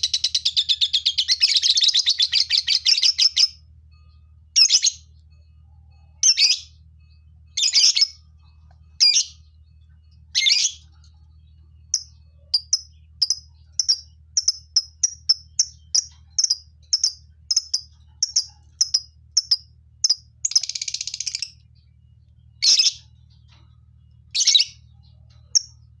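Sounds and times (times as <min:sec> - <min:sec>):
lovebirds shrill chirping: 0:06.2 - 0:06.7, 0:09.0 - 0:09.4, 0:10.4 - 0:11.1, 0:11.9 - 0:21.6, 0:22.6 - 0:23.6, 0:24.3 - 0:25.8.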